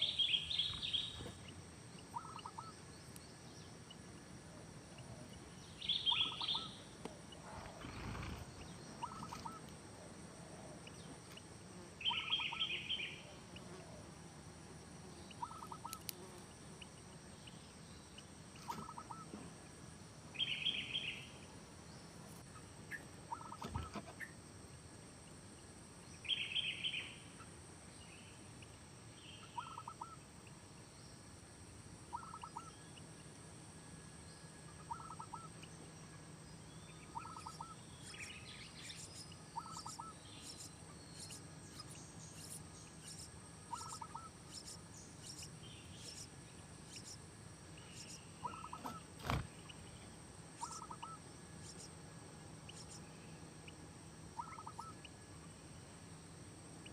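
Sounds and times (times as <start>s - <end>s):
faint outdoor background: 0.0s - 56.9s
bird trilling call: 2.1s - 2.7s, 5.9s - 6.8s, 9.0s - 9.6s, 12.0s - 13.1s, 15.4s - 16.0s, 23.3s - 23.9s, 29.4s - 30.2s, 32.1s - 32.8s, 34.8s - 35.5s, 37.1s - 38.3s, 38.9s - 46.3s, 47.9s - 49.4s, 50.6s - 51.9s, 54.4s - 55.0s
low bird chirps: 5.6s - 9.7s, 36.9s - 46.3s, 47.8s - 51.9s.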